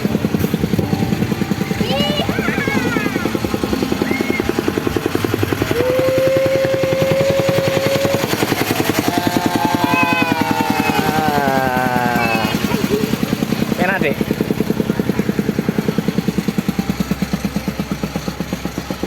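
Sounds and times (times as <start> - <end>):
small engine chugging: 0.0 - 19.0
long held tone: 5.4 - 13.0.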